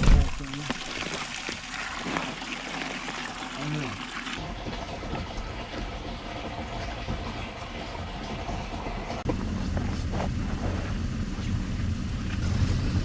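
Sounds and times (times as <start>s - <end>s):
truck engine revving: 8.9s - 13.0s.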